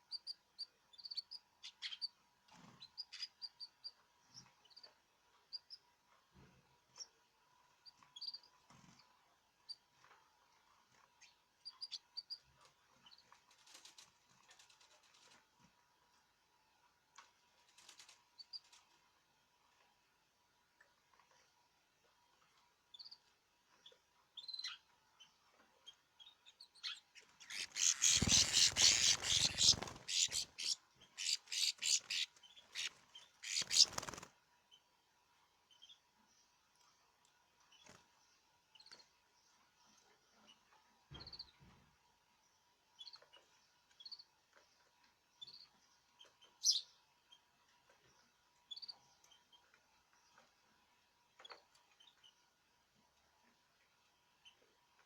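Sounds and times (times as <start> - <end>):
caged birds chirping: 26.5 - 34.3
loud rapid rustling: 27.5 - 30.6.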